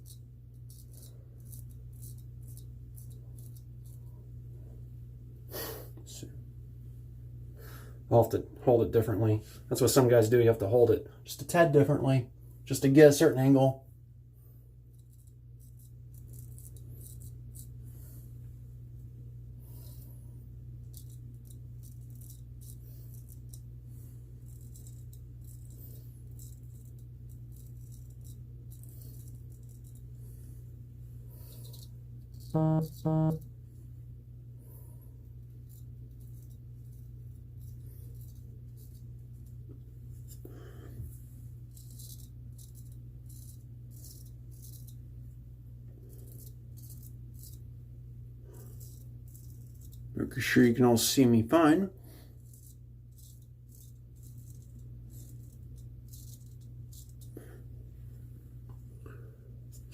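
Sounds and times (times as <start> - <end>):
razor scraping whiskers: 0.0 - 4.1, 14.9 - 18.0, 20.8 - 30.6, 35.3 - 45.1, 45.9 - 47.8, 48.4 - 51.0, 51.6 - 57.6
low hum: 0.0 - 11.2, 13.8 - 50.9.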